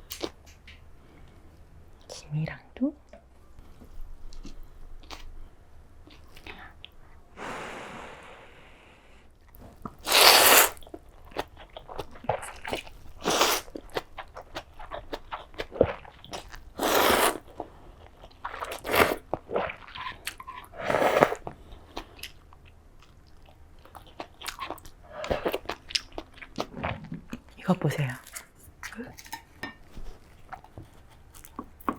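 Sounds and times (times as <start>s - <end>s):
chewing and crunching: 9.4s - 31.9s
loud noodle slurps: 10.0s - 10.8s, 13.2s - 13.7s, 16.8s - 17.5s, 18.5s - 19.8s, 20.8s - 21.4s.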